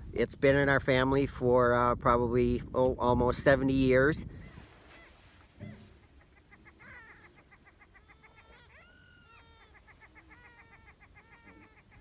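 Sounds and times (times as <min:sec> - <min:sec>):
prairie chickens cackling and whooping: 0:04.4 - 0:12.0.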